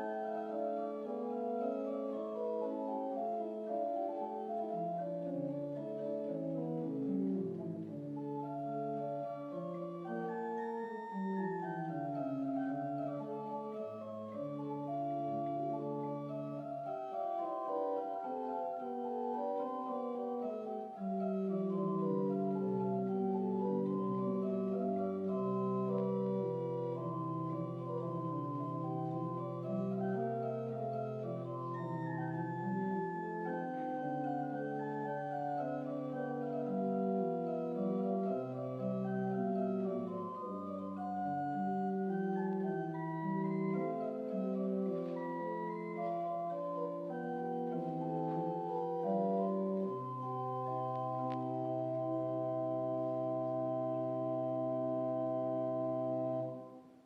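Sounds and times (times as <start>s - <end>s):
organ playing sustained chords: 0.0s - 57.0s.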